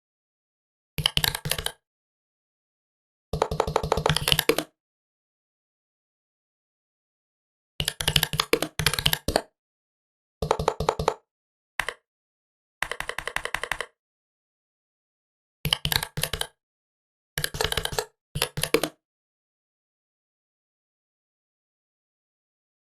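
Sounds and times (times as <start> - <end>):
laptop keyboard typing: 1.0 - 1.8, 3.4 - 4.7, 10.4 - 11.2, 11.8 - 12.0, 12.8 - 14.0, 15.7 - 16.6, 17.4 - 19.0.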